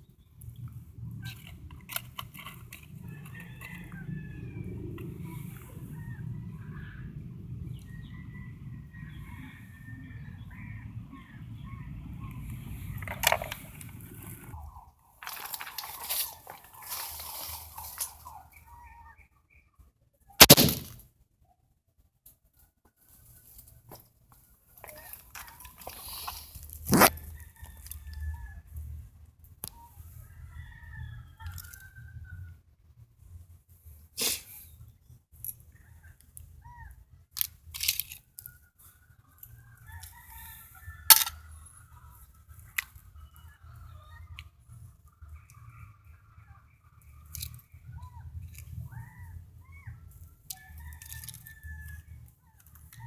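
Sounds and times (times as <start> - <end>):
chickens calling: 0.7 - 19.4, 24.8 - 28.5
rustling handling noise: 1.2 - 4.0, 12.6 - 18.7, 23.1 - 27.8
rifle shot: 20.4 - 21.0
small clicks: 37.4 - 38.6, 47.3 - 47.7.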